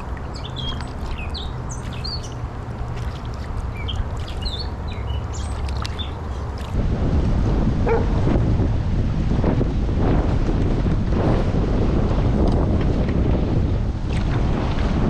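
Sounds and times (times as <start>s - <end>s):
birds chirping: 0.0s - 6.8s
steady low hum: 0.0s - 15.0s
water noise: 0.0s - 15.0s
wind buffeting microphone: 0.0s - 15.0s.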